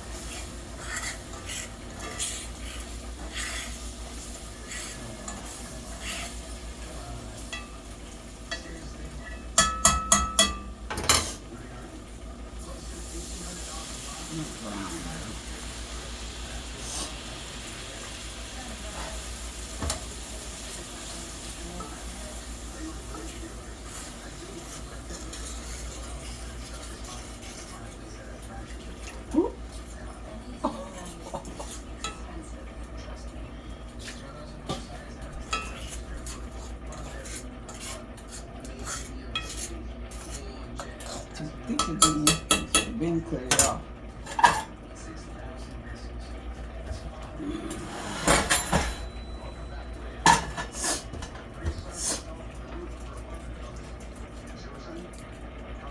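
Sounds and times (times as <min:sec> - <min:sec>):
food sizzling in a frying pan: 0:00.0 - 0:45.8
utensil knocking against pan: 0:09.6 - 0:11.2.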